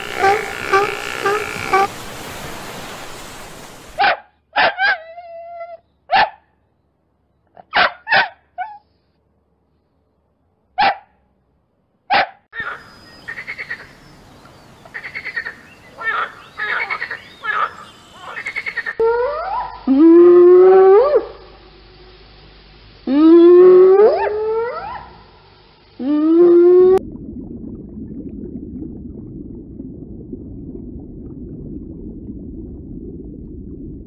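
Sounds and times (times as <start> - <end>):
steady hiss with soft pulses: 0.0 - 4.0, 21.2 - 23.1
dog barking: 4.0 - 5.0, 6.1 - 6.4, 7.7 - 8.8, 10.8 - 11.2, 12.1 - 12.8, 24.1 - 25.2.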